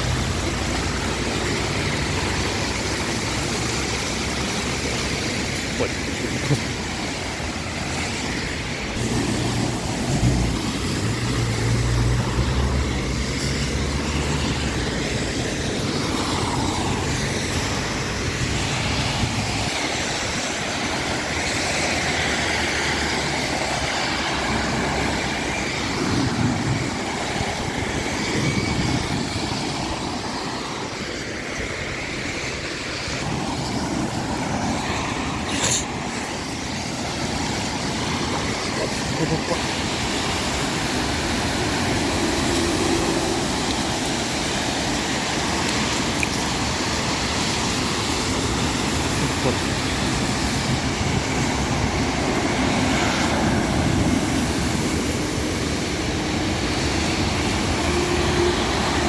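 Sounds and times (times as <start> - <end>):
heavy vehicle engine rumble: 0.0 - 19.8
city traffic noise: 0.0 - 59.0.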